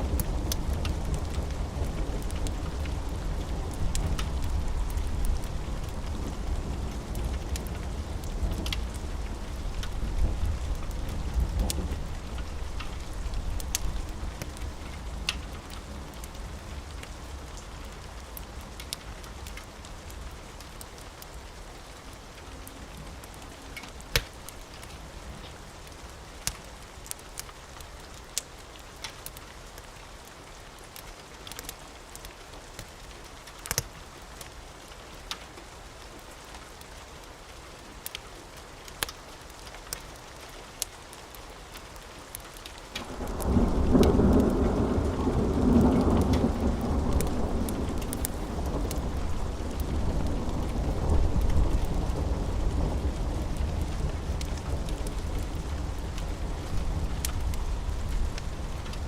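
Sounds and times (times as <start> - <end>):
steady rain: 0.0 - 59.0
wood fire crackling: 0.0 - 59.0
low thunder rumble: 43.0 - 59.0.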